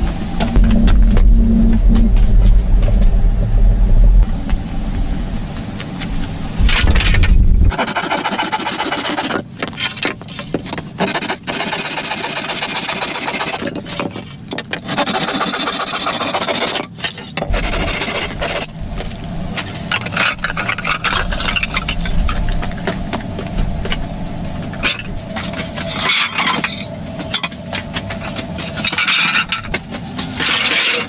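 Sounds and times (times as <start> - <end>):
low rumble: 0.0 - 7.8, 17.5 - 25.7
hand scraping and rasping: 6.6 - 31.0.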